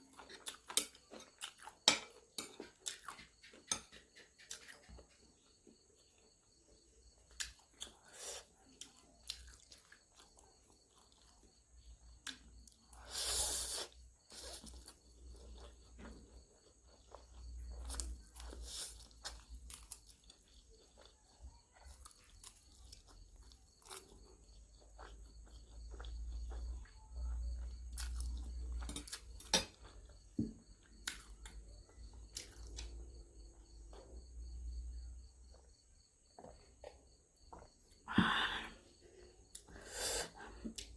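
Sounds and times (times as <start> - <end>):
chewing and biting food: 2.5 - 6.2, 7.0 - 12.9, 14.2 - 37.8.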